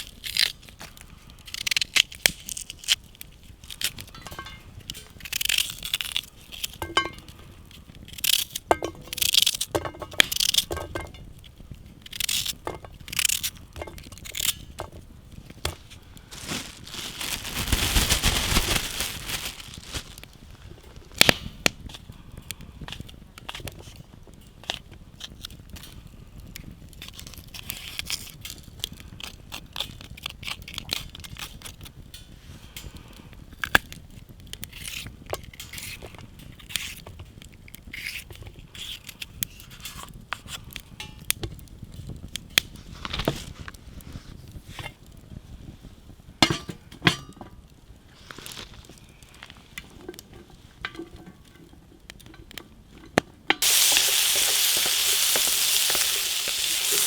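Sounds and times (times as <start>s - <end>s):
cooking gear being handled: 0.0s - 22.1s, 48.2s - 57.0s
wood fire crackling: 0.0s - 57.0s
food sizzling in a hot pan: 53.6s - 57.0s.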